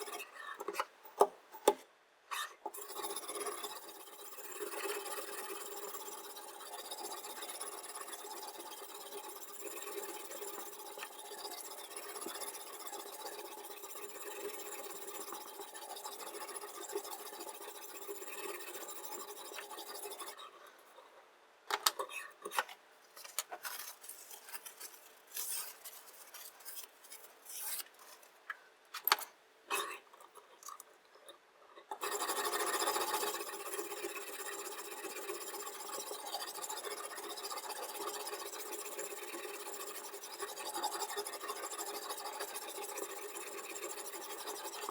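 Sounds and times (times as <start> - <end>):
short scrapes and clicks: 21.9 - 28.4.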